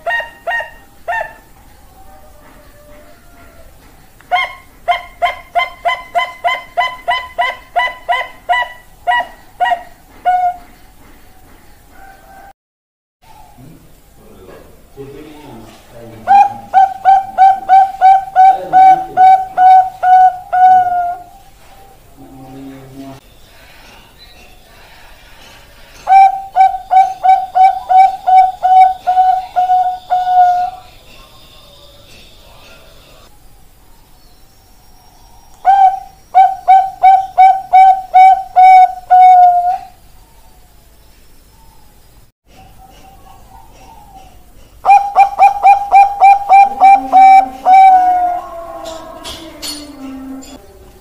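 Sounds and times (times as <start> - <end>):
dove cooing: 4.3 - 10.8, 16.2 - 22.1, 26.1 - 31.4, 35.6 - 40.0, 42.6 - 51.0.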